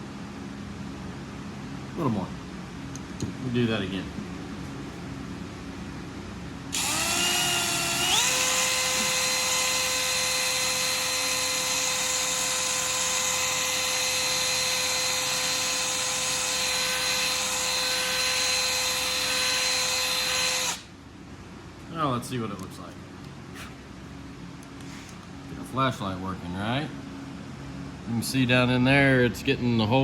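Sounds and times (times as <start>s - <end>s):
electric drill whining: 6.7s - 20.9s.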